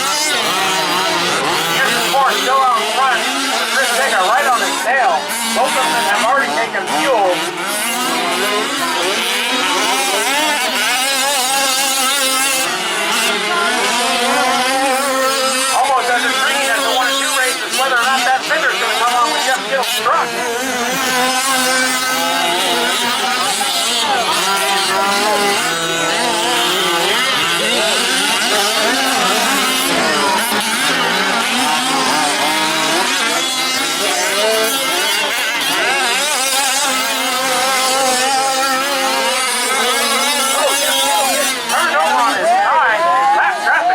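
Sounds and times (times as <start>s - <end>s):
rc truck engines revving: 0.0s - 43.9s.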